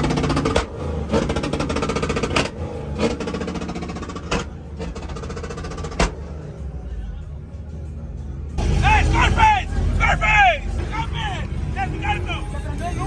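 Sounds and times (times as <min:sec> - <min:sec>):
truck engine at high revs: 0:00.0 - 0:07.0.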